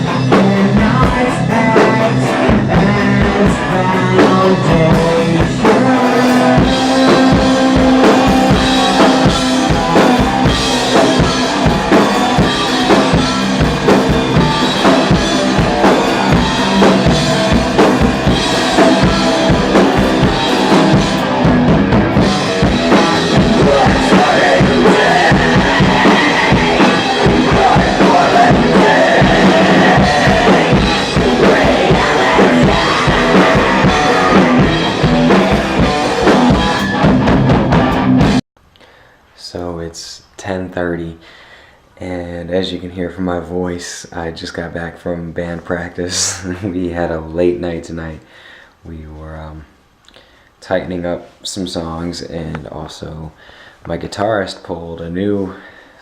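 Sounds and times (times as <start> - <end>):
drum kit: 0.0 - 38.4, 46.1 - 47.1
rock band playing: 0.0 - 38.4.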